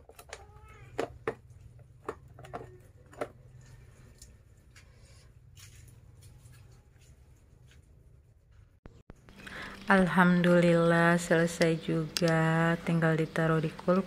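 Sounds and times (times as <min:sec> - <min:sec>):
plastic containers knocking: 0:00.0 - 0:03.6.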